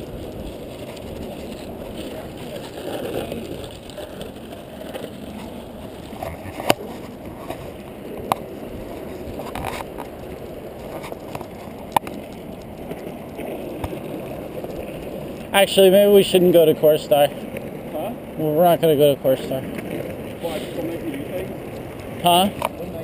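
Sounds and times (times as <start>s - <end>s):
skateboard wheels rolling on pavement: 0.0s - 23.0s.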